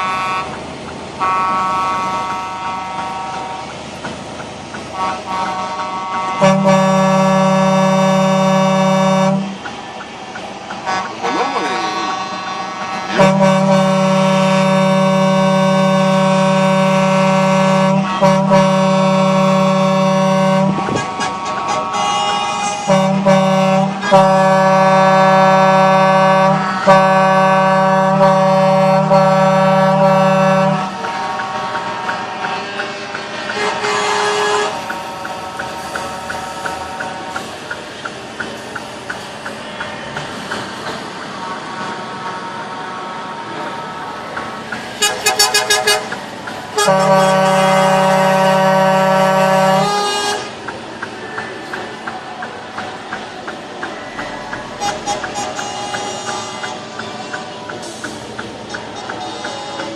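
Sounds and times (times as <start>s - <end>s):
deep truck air horn: 0.0s - 3.7s, 4.9s - 9.6s, 10.8s - 37.5s, 41.4s - 50.6s, 54.6s - 57.0s
high truck air horn: 0.0s - 3.7s, 4.9s - 9.6s, 10.8s - 37.5s, 41.3s - 50.7s, 54.7s - 59.9s.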